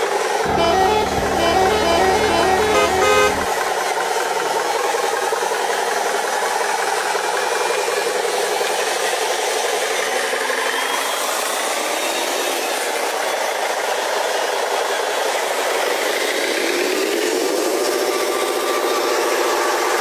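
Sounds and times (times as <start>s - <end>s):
model truck motors whining: 0.5s - 3.7s.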